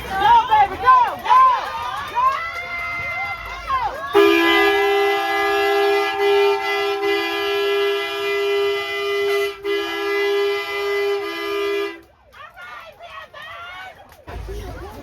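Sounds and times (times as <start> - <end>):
faint shouting voices: 0.0 - 8.9
horn blaring two-note blast: 4.2 - 12.0.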